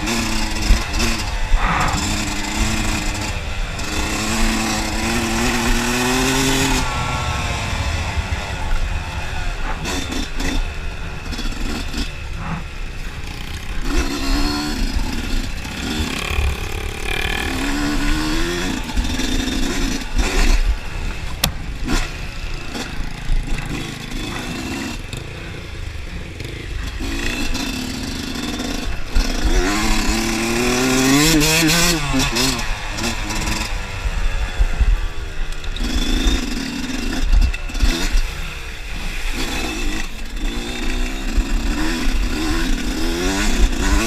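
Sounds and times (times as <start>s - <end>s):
dirt bike engine revving: 0.0s - 44.0s
sharp click: 21.3s - 22.1s.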